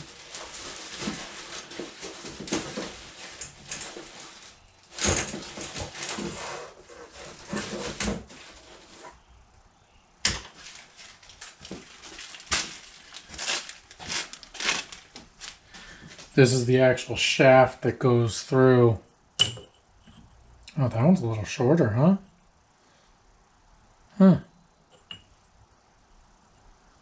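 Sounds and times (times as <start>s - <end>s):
parts being rummaged through: 0.0s - 9.2s, 10.2s - 16.4s.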